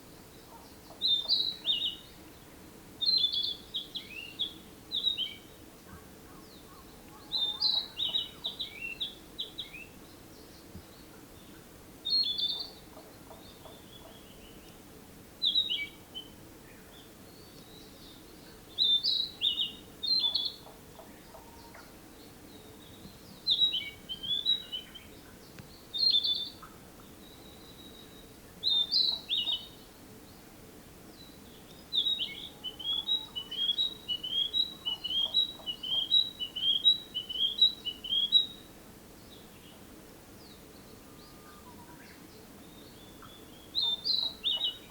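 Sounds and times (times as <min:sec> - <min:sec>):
bird singing whistled phrases: 0:32.0 - 0:38.6.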